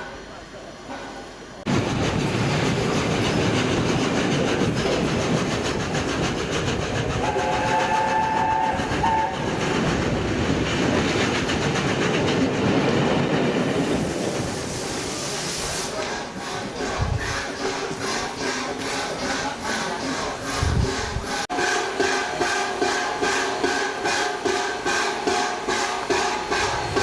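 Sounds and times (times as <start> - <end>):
train passing at speed: 0.9 - 27.0
train horn chord: 21.5 - 27.0.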